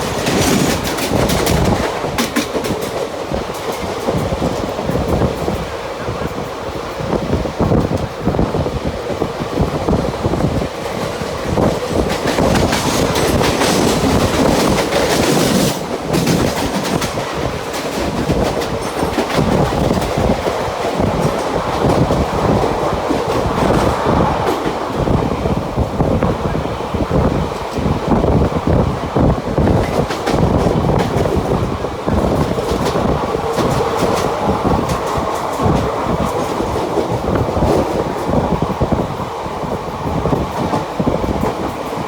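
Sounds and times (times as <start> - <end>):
train wheels clattering over rail joints: 0.0 - 25.8, 27.1 - 39.1.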